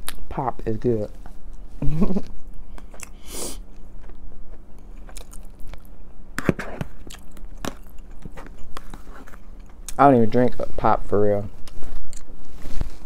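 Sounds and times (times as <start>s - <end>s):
person chewing with mouth clicks: 2.2s - 5.9s, 6.8s - 10.0s.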